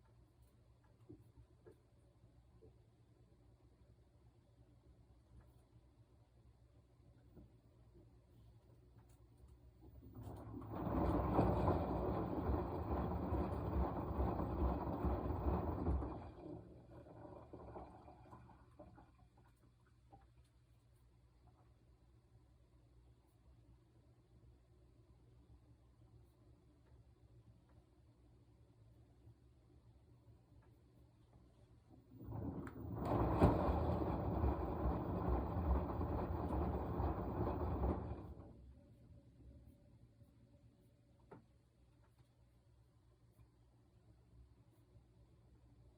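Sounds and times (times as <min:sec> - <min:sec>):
washing machine churning: 0:09.8 - 0:20.2, 0:31.9 - 0:39.1.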